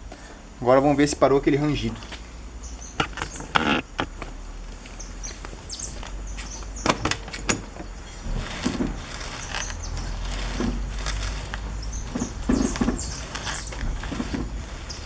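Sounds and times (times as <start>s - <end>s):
suspension knocks and clicks: 3.0s - 15.0s.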